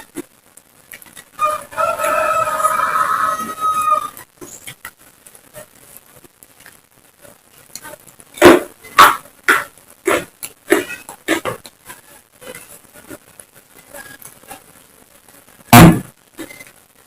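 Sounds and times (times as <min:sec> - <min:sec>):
chicken calling: 0:01.4 - 0:04.2.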